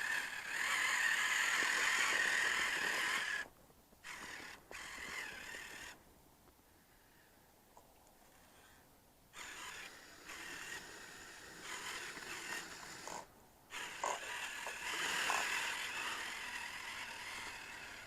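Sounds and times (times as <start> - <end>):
electric motor whining: 0.0 - 6.0, 9.4 - 18.0.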